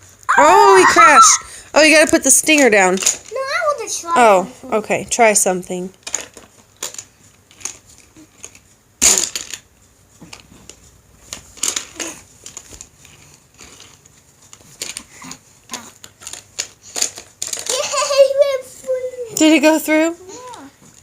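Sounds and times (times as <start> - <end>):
toy car clattering: 2.5 - 3.5, 8.4 - 9.7, 11.3 - 12.8, 13.6 - 19.5.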